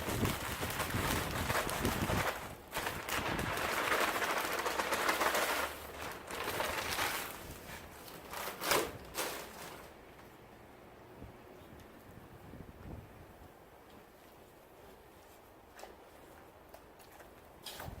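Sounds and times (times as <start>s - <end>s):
potting soil rustling and scraping: 0.0s - 10.2s.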